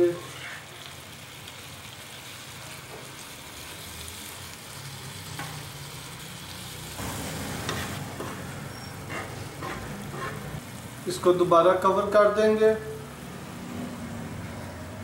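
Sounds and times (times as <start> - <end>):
liver and tomatoes sizzling: 0.0 - 15.0
metal spatula stirring and scraping: 7.4 - 10.6.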